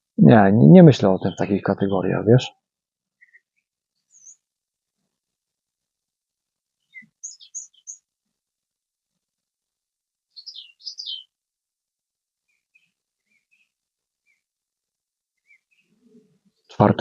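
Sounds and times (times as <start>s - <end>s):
songbirds chirping: 0.0s - 4.6s, 6.6s - 8.5s, 10.3s - 11.4s, 12.4s - 14.6s, 15.3s - 17.0s.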